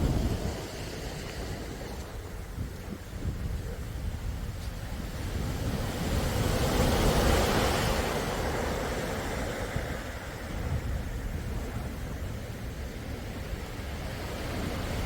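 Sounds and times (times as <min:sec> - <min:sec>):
sea wave washing in: 0:00.0 - 0:02.5.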